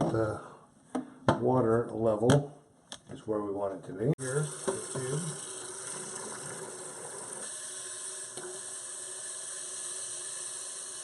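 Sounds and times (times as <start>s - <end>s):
toilet tank water hissing: 4.2s - 11.0s.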